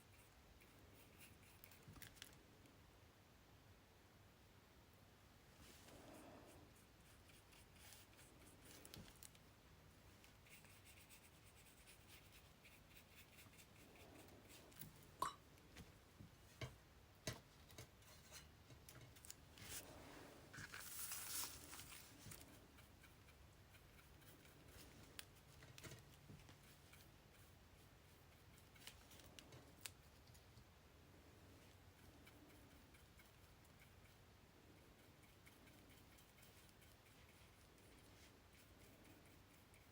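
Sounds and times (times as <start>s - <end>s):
paper rustle: 20.5s - 22.4s.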